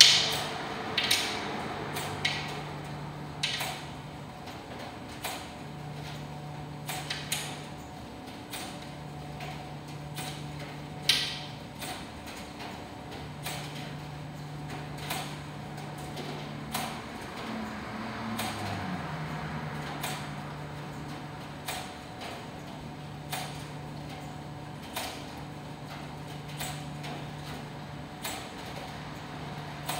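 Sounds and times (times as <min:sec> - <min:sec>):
sharp clicks and knocks: 0:00.0 - 0:02.7, 0:03.4 - 0:06.2, 0:08.4 - 0:14.1.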